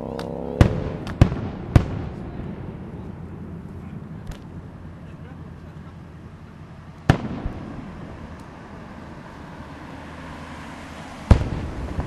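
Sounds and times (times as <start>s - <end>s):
low echoing rumble: 0.0s - 9.0s
firework shells exploding: 0.6s - 5.9s, 7.0s - 8.6s, 11.3s - 12.0s.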